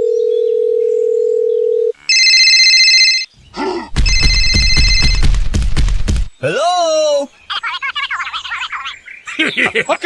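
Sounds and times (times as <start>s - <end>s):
telephone dial tone: 0.5s - 3.3s
phone ringing: 0.6s - 3.3s, 4.0s - 5.2s.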